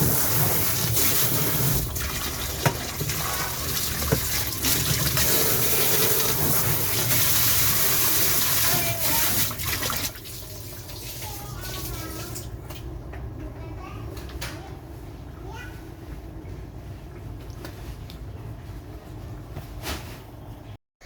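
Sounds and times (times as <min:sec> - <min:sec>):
water running and splashing: 0:00.0 - 0:12.4.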